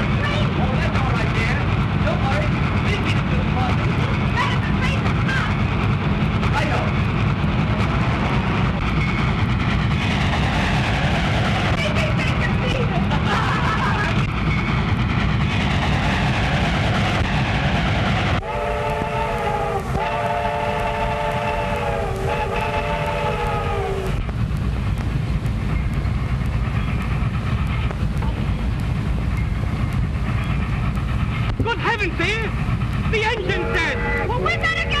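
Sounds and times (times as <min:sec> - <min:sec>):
train rumbling: 0:00.0 - 0:35.0
multi-note train whistle: 0:18.4 - 0:24.2.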